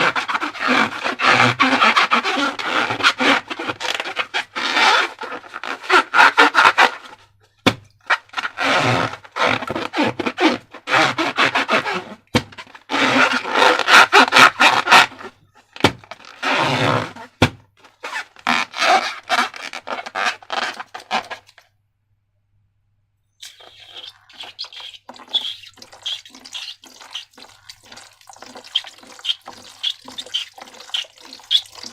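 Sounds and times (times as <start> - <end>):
slime squelching by hand: 23.4 - 31.9.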